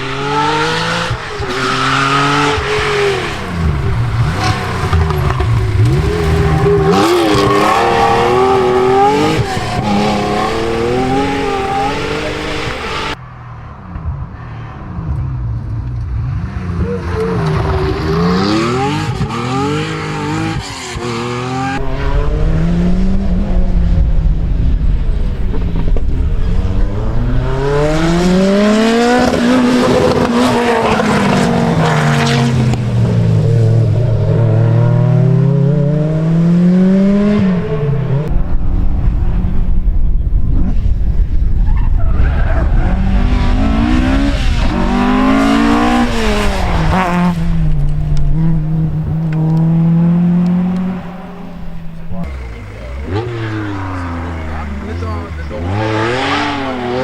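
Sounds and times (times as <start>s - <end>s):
rally car engine revving: 0.0s - 13.2s, 13.9s - 57.0s
heavy low rumble: 21.8s - 29.8s, 31.0s - 55.7s.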